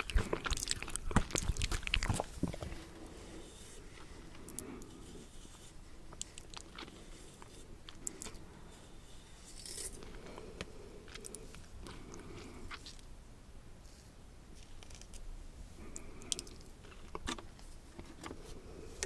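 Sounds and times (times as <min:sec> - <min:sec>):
chewing and mouth sounds: 0:00.0 - 0:03.1, 0:06.1 - 0:08.5, 0:10.0 - 0:13.1, 0:15.8 - 0:18.4.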